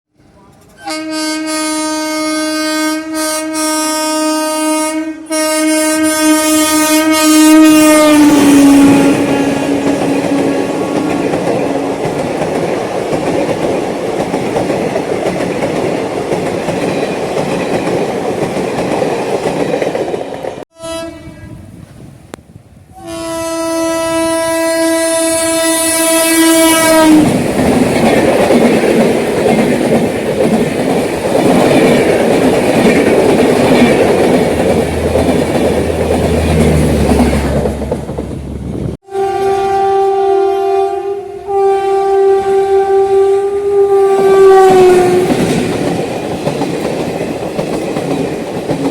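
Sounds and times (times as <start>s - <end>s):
train coaches rumbling and clacking: 0.2s - 1.4s, 7.6s - 20.6s, 25.2s - 40.2s, 41.4s - 48.9s
locomotive horn blast: 0.8s - 12.1s, 20.7s - 21.7s, 22.9s - 27.4s, 39.0s - 45.4s.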